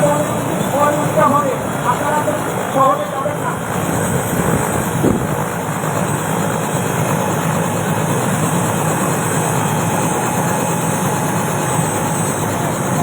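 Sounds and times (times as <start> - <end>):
helicopter turbine and rotor running: 0.0 - 13.0.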